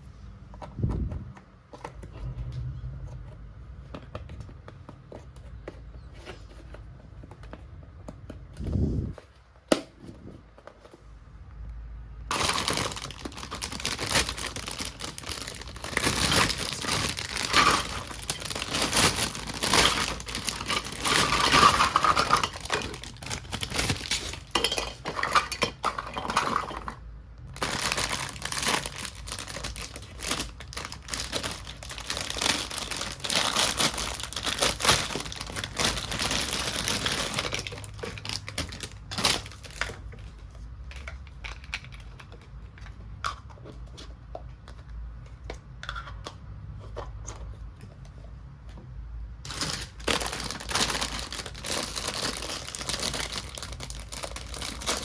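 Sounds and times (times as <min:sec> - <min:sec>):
packaging crinkling and rustling: 0:12.3 - 0:45.6, 0:49.4 - 0:55.0.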